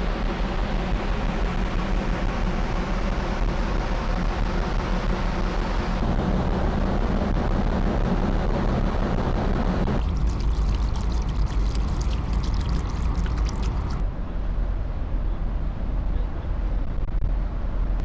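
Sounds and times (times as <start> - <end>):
water rushing past hull: 10.0 - 14.0.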